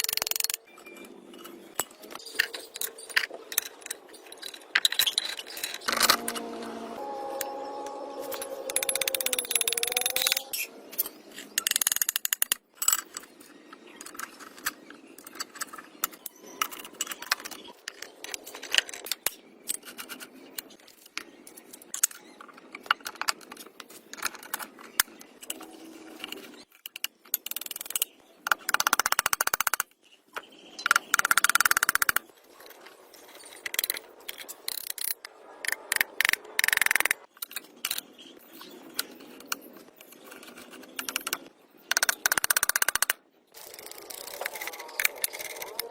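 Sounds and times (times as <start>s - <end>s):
scraping and clicking: 38.9s - 45.9s.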